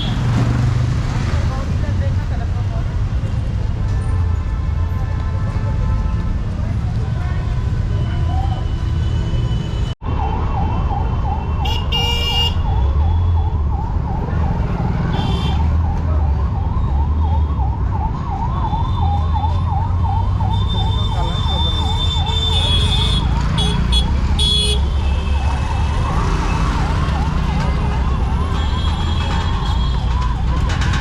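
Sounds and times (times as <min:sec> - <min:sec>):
street traffic rumble: 0:00.0 - 0:31.0
emergency siren wailing: 0:10.0 - 0:23.1, 0:25.2 - 0:31.0.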